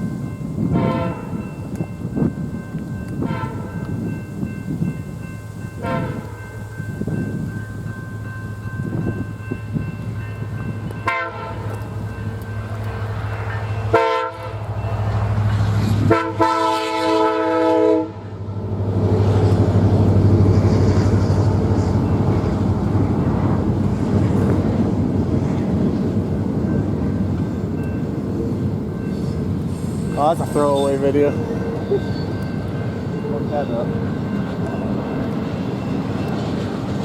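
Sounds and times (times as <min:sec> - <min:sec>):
locomotive engine hum: 0:00.0 - 0:37.0
train rumbling past: 0:00.0 - 0:37.0
locomotive air horn blasts: 0:00.7 - 0:01.4, 0:03.2 - 0:03.8, 0:05.8 - 0:06.4, 0:11.0 - 0:11.8, 0:13.9 - 0:14.7, 0:16.0 - 0:18.4.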